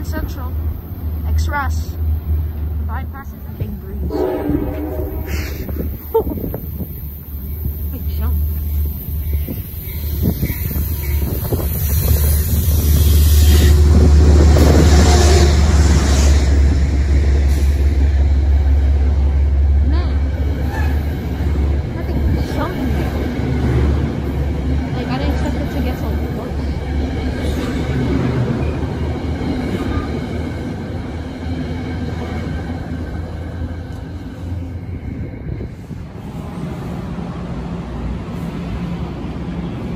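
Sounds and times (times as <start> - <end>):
train rumbling past: 0.0 - 39.9.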